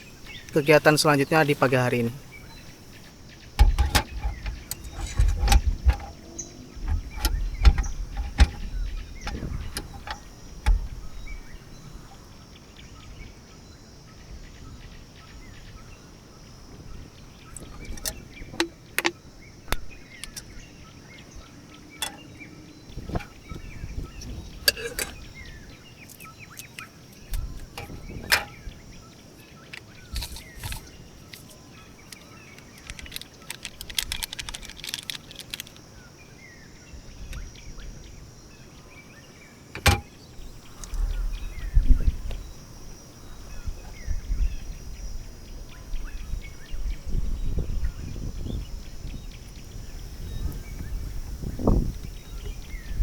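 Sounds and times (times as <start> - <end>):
wind rumbling on microphone: 0.0 - 26.4, 27.1 - 39.0, 39.8 - 53.0
clicks and knocks: 3.6 - 11.0, 27.3 - 28.6, 39.8 - 40.2.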